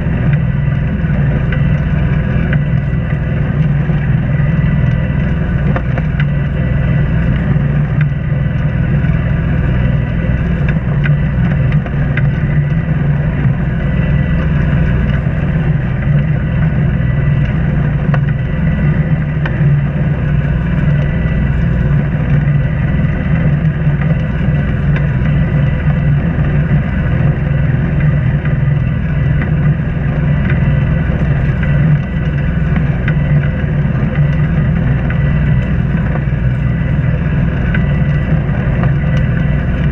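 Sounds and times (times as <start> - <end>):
boat engine humming: 0.0 - 39.9.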